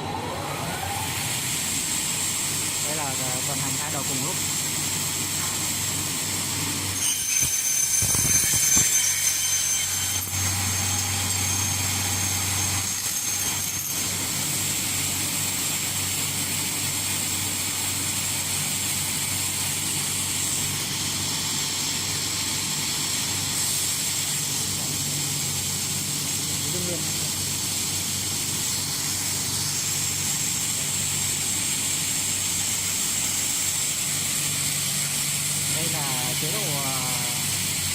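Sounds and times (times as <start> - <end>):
cutting saw whining: 6.9 - 15.5.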